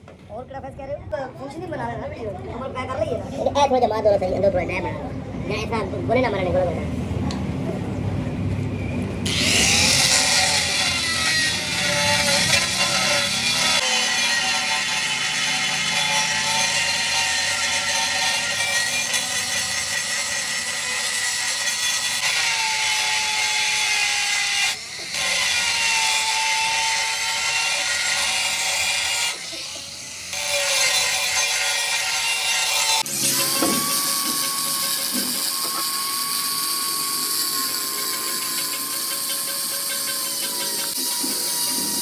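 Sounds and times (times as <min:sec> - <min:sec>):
power tool whining: 0:09.2 - 0:42.0.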